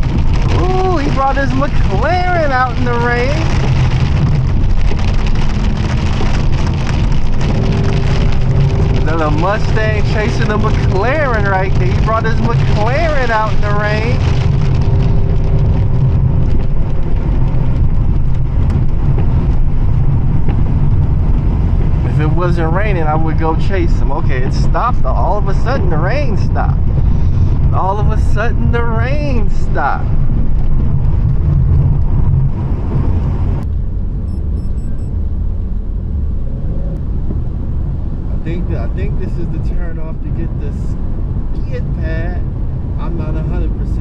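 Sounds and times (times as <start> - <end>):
rain and spray hissing: 0.0 - 26.4
car engine and tyres on wet road: 0.0 - 44.0.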